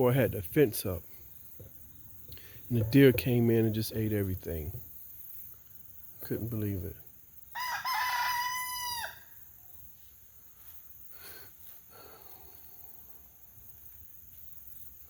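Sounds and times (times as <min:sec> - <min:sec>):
rooster crowing: 0:07.5 - 0:09.4.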